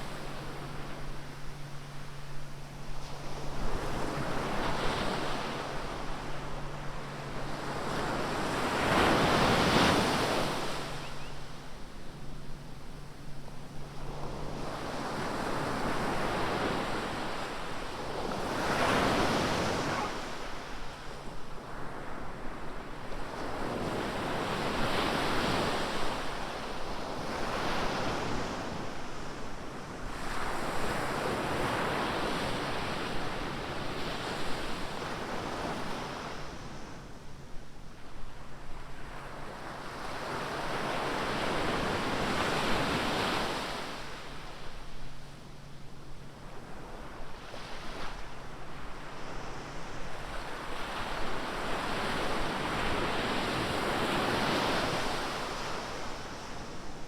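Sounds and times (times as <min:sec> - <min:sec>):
waves breaking on beach: 0:18.4 - 0:20.5.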